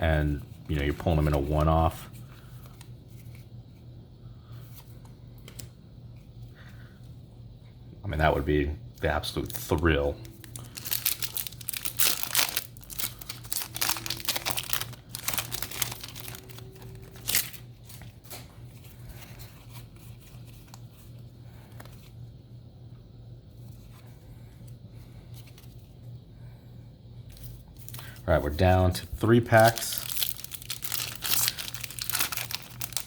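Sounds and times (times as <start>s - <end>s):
cards being handled: 9.0s - 22.2s, 29.2s - 33.0s
foil wrapper crinkling: 9.1s - 18.4s, 29.4s - 33.0s
wrapper tearing: 9.4s - 17.9s, 29.6s - 33.0s.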